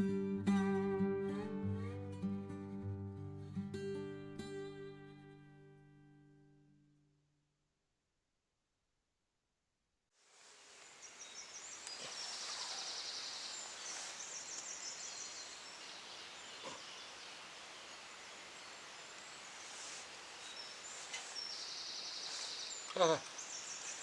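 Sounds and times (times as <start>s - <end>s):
rushing hiss: 10.3s - 15.5s, 16.7s - 24.0s
buzzy insect or bird chirps: 10.8s - 24.0s
faint clicks: 11.8s - 12.8s.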